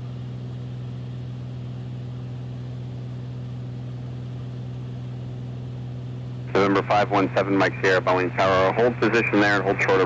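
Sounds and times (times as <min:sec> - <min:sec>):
propeller plane engine drone: 0:00.0 - 0:10.0.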